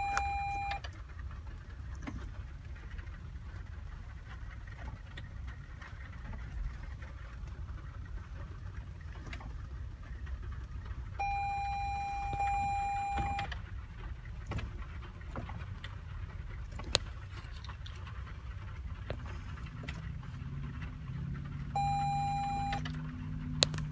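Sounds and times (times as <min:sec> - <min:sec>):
electronic beep: 0:00.0 - 0:00.8, 0:11.2 - 0:13.5, 0:21.8 - 0:22.8
low steady rumble: 0:00.0 - 0:23.9.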